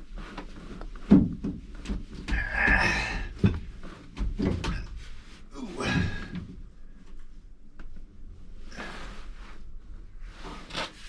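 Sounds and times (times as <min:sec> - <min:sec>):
knocks and clunks: 0:00.8 - 0:05.1.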